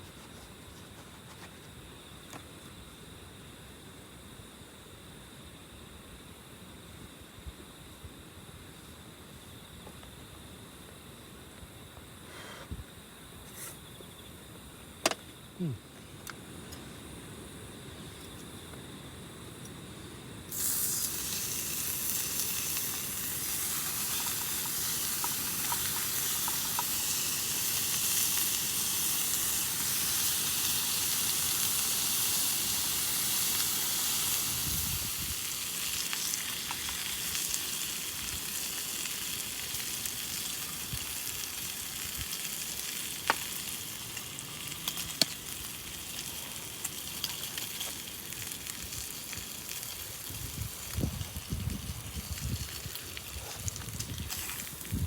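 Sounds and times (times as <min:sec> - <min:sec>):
sharp pops of frying food: 0:20.5 - 0:31.9, 0:35.7 - 0:45.8
food sizzling in a pan: 0:20.5 - 0:55.0.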